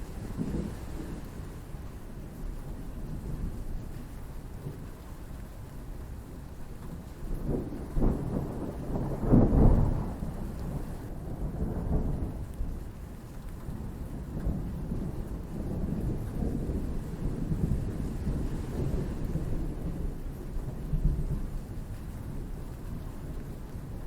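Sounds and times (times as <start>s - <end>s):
steady rain: 0.0s - 24.0s
thunder rumbling: 7.4s - 12.5s.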